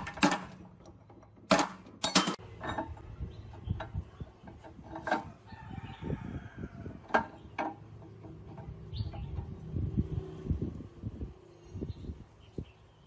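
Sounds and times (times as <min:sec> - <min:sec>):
metal tools clinking: 0:00.0 - 0:03.1.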